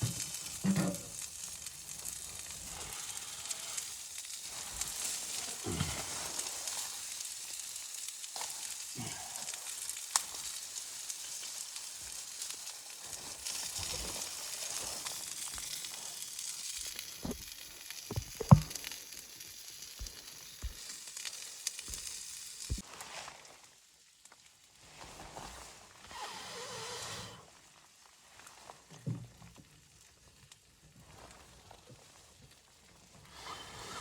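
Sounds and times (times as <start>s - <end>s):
food sizzling in a pan: 0.0s - 24.1s.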